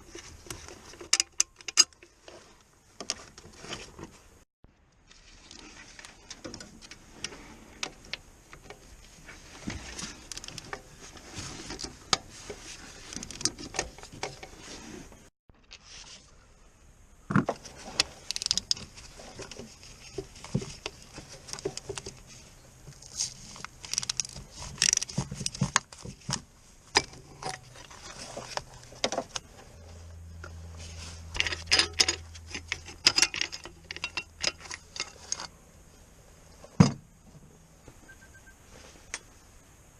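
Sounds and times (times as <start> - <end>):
low steady hum: 15.9 - 39.9
metal tools clinking and clattering: 31.3 - 35.5.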